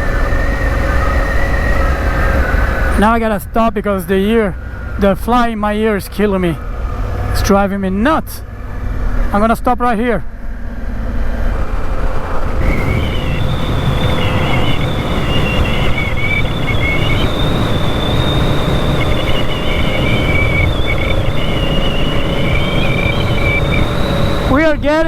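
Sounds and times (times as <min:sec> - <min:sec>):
wind noise on microphone: 0:00.0 - 0:07.5, 0:10.5 - 0:25.0
thin high whine: 0:00.0 - 0:25.0
motorcycle engine running: 0:10.3 - 0:24.5.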